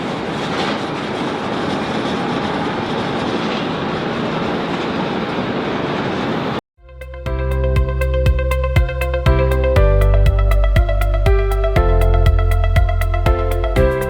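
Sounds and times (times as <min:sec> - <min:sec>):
jet engines roaring: 0:00.0 - 0:06.6.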